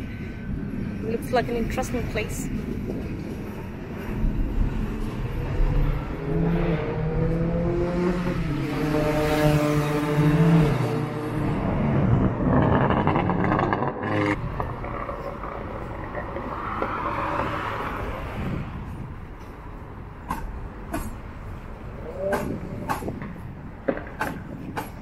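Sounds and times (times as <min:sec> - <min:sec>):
vehicle passing: 0:01.2 - 0:23.7
buzzing vehicle: 0:01.6 - 0:20.6.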